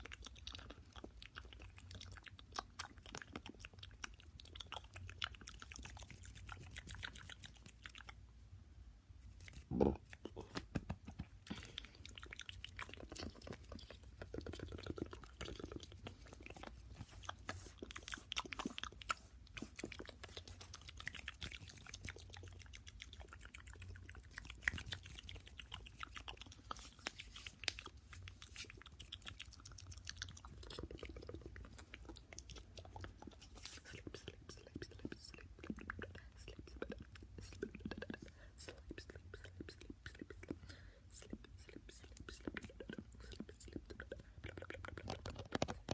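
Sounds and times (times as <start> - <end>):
wet mouth clicks and smacks: 9.4 - 45.9.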